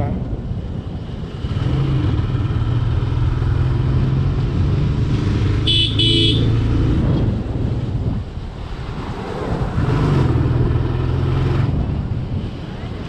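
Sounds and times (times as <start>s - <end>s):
horn toots: 5.6s - 6.6s.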